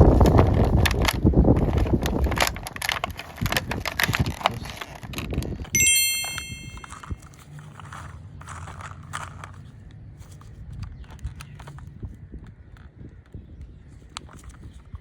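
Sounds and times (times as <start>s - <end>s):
bright bell ding: 5.8s - 7.2s.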